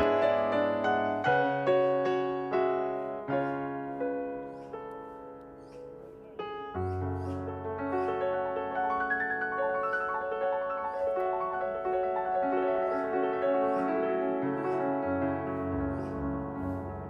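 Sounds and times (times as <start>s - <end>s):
gentle piano chords: 0.0s - 17.0s.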